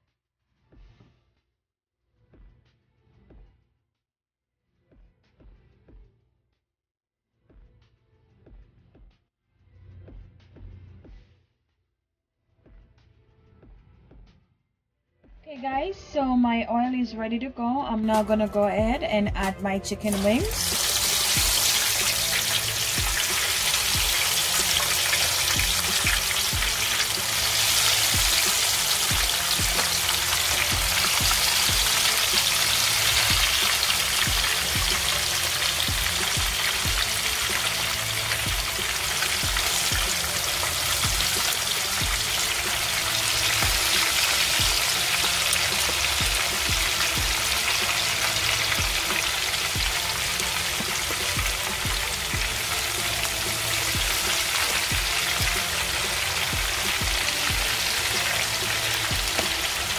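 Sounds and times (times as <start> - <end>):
background music with a beat: 7.4 - 9.2, 9.9 - 11.6, 12.6 - 14.5, 17.9 - 59.9
wings sizzling in hot oil: 20.0 - 59.9.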